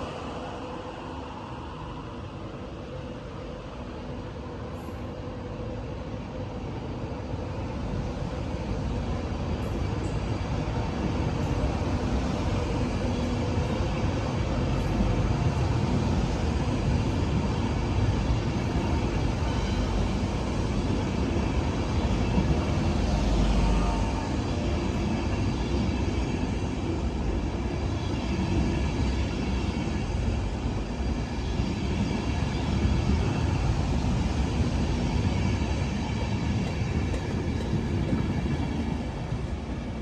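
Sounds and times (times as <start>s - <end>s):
train rumbling: 0.0s - 40.0s.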